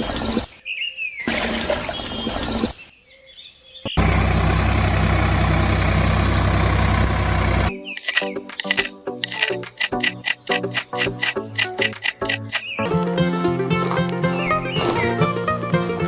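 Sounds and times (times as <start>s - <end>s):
birds chirping: 0.0s - 13.0s, 13.7s - 15.6s
outdoor noise: 0.0s - 16.0s
small engine running: 4.0s - 7.7s.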